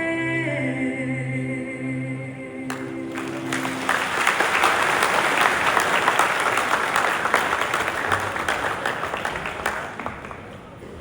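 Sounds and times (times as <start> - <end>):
audience applauding: 2.7 - 10.8.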